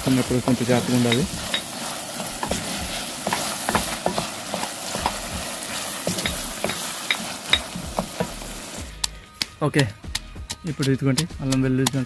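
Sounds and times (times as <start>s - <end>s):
wooden spoon scraping a pot: 0.0s - 8.8s
food sizzling in hot oil: 0.0s - 10.6s.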